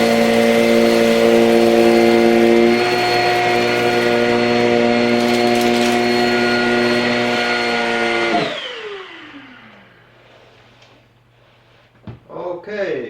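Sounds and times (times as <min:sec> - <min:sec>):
vacuum switch: 0:00.0 - 0:10.0
vacuum cleaner whining on carpet: 0:00.0 - 0:11.2.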